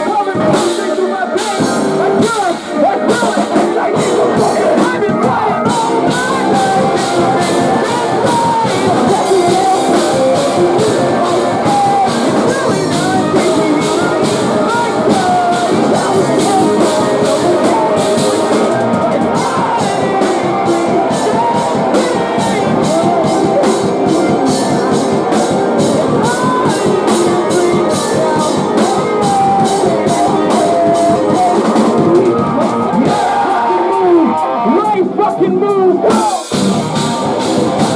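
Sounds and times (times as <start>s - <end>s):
distorted guitars: 0.0s - 37.9s
fast driving drums: 0.0s - 37.9s.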